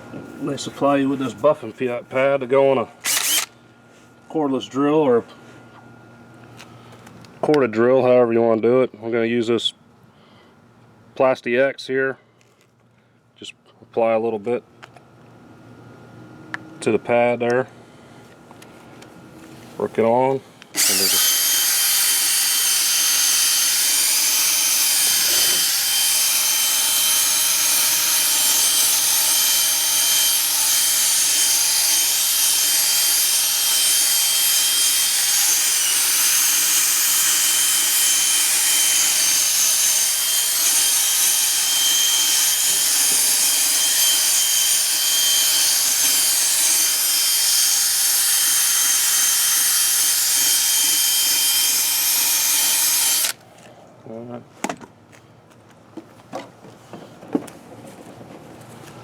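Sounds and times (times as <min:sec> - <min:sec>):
drill motor whine: 0:03.0 - 0:03.5, 0:20.7 - 0:53.4.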